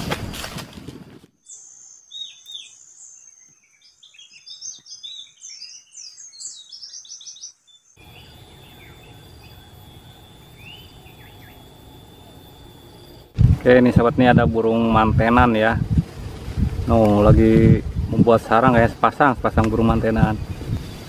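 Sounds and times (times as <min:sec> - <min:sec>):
small birds chirping: 0:01.4 - 0:14.0, 0:16.6 - 0:21.0
hissy background: 0:01.5 - 0:21.0
steady high whine: 0:08.0 - 0:21.0.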